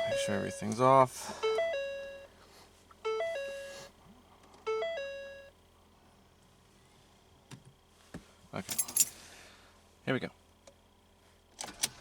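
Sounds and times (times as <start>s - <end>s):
car warning chime: 0.0s - 2.4s, 3.0s - 3.9s, 4.7s - 5.6s.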